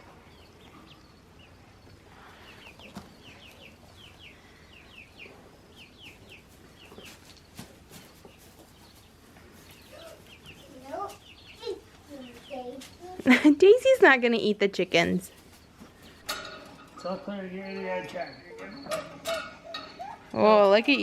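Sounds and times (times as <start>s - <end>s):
chicks peeping: 0.3s - 13.2s.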